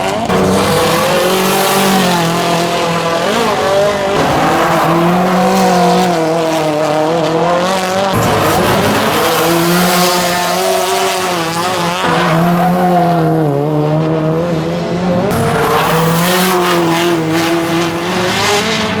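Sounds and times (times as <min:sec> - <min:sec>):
car engine revving high: 0:00.0 - 0:19.0.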